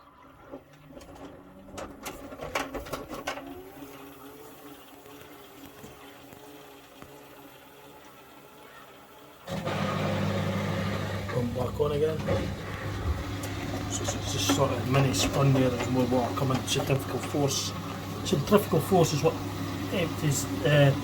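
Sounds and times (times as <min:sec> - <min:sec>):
drain pump humming: 0:00.0 - 0:21.0
washing machine drum spinning: 0:00.9 - 0:21.0
washing machine clicks: 0:11.3 - 0:21.0.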